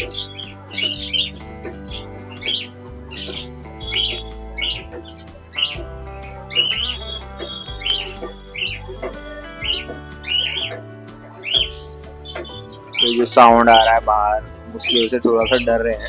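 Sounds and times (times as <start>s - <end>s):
budgerigars chirping: 0.0s - 14.0s
background music with sustained chords: 0.0s - 16.0s.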